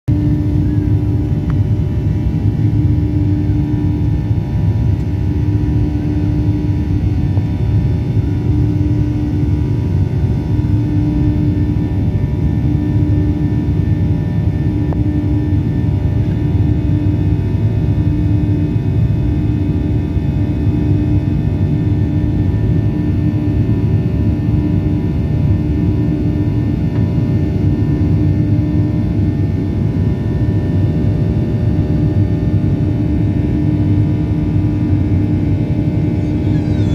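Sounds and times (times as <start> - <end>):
aircraft cabin engine drone: 0.1 - 36.9
pulsing humming tone: 0.1 - 36.9.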